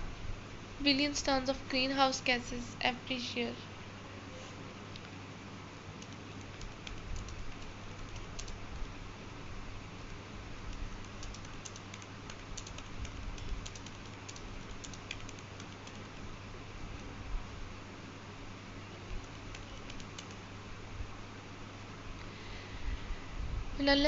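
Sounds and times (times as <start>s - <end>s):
steady low hum: 0.0s - 24.0s
keyboard keys clicking: 6.0s - 8.9s, 10.7s - 16.2s, 19.2s - 20.4s.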